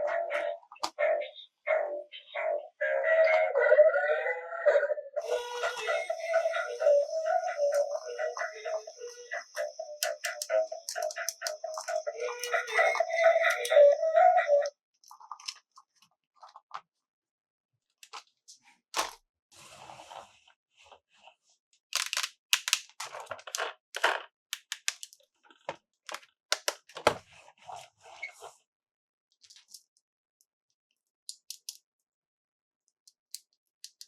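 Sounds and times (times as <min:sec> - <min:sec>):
plastic toy parts clicking: 0:10.0 - 0:13.8, 0:21.9 - 0:25.3, 0:26.1 - 0:27.1, 0:31.0 - 0:31.8, 0:33.0 - 0:34.0.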